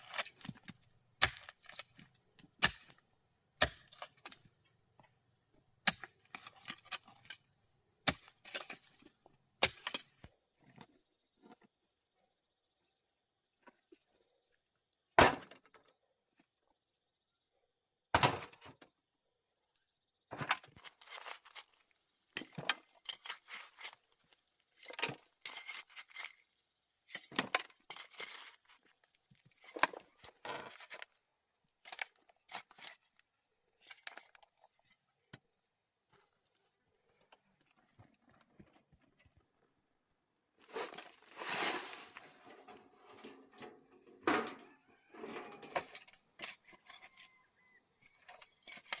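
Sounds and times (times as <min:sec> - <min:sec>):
objects scraping: 0:40.6 - 0:47.4.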